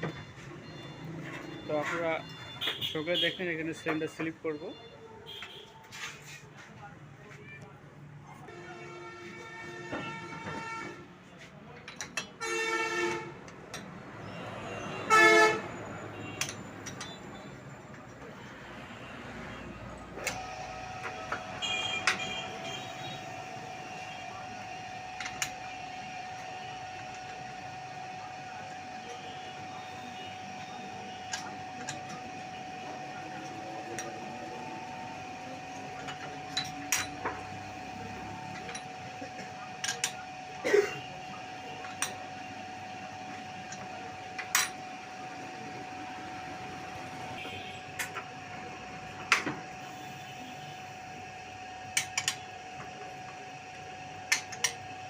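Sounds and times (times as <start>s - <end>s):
sharp metal taps and clicks: 16.4s - 17.2s
steady motor hum: 18.2s - 55.0s.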